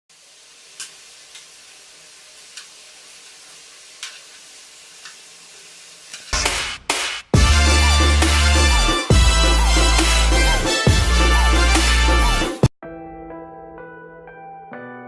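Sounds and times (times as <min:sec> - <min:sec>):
food sizzling in hot oil: 0:00.1 - 0:11.4.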